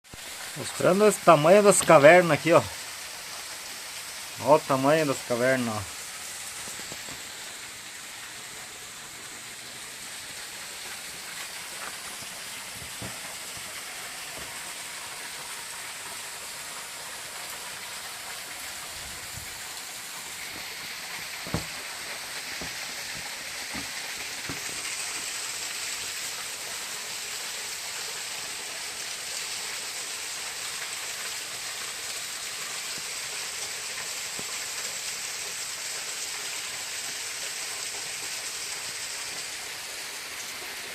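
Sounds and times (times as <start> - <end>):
falling water hiss: 0.0 - 40.9
short knock: 21.4 - 21.8.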